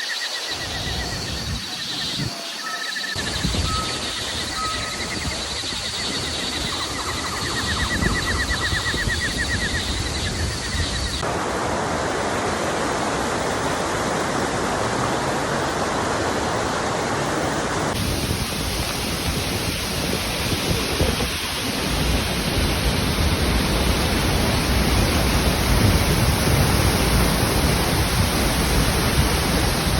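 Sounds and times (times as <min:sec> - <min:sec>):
waterfall rushing: 0:11.2 - 0:29.9.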